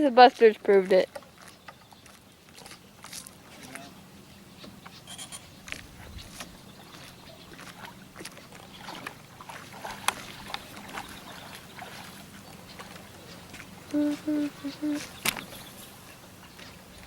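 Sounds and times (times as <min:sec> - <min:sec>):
small waves lapping: 0:00.0 - 0:04.9, 0:05.6 - 0:17.0
water splashing: 0:06.3 - 0:17.0
faint low hum: 0:08.8 - 0:17.0.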